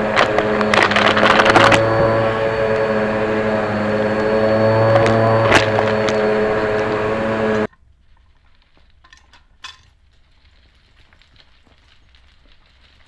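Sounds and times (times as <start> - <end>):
vacuum cleaner motor humming: 0.0 - 7.7.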